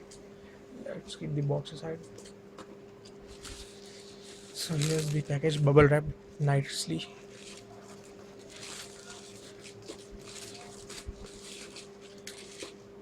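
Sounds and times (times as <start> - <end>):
bubble wrap rustling and crinkling: 3.3 - 5.6, 7.0 - 12.8.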